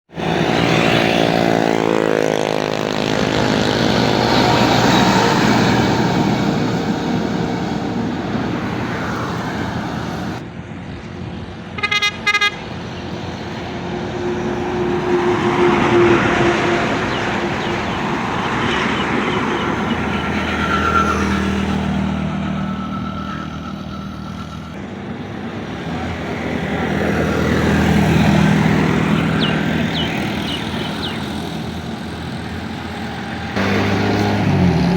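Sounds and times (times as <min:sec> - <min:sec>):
tractor and truck engines passing: 0:00.1 - 0:34.9
vehicle horn short blasts: 0:11.8 - 0:12.6.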